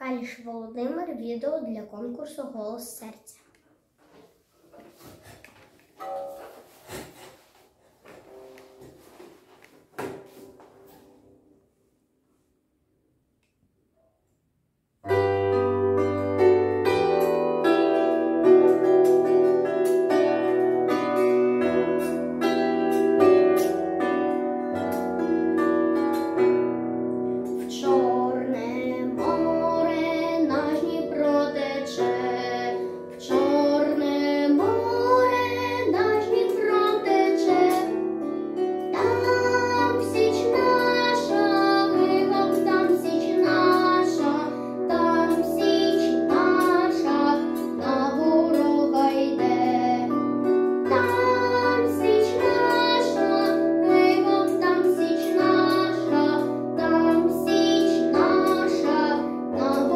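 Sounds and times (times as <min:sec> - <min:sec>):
boy singing: 0:27.6 - 0:38.0, 0:38.9 - 0:50.2, 0:50.9 - 0:59.9.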